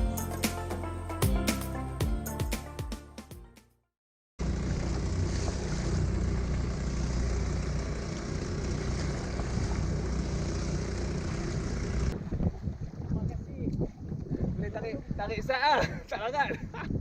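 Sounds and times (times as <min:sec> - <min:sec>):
wind buffeting microphone: 0:11.6 - 0:17.0.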